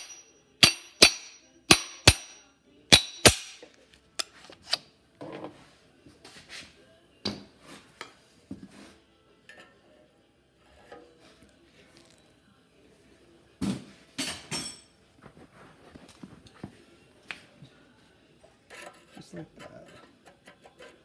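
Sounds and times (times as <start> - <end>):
hammer striking steel: 0.0 - 3.7
clinks of metal parts handled: 0.0 - 4.4.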